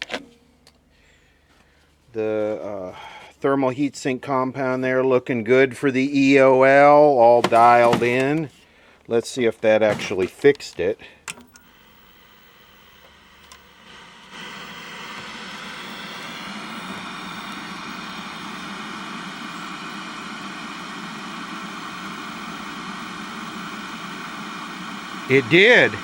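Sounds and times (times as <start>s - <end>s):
television hiss with buzz: 11.6s - 26.0s
television hum: 11.6s - 26.0s.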